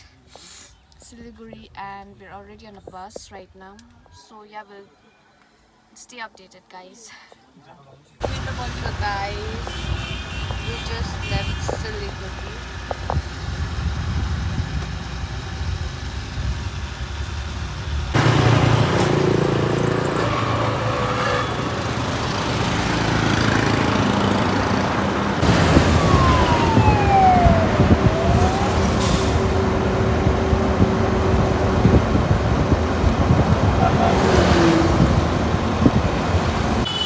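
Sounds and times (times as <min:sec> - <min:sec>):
bus engine and tyres: 0:08.2 - 0:37.0.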